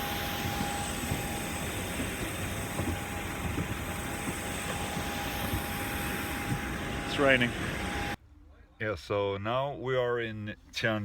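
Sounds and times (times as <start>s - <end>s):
airplane cabin engine hum: 0.0s - 8.2s.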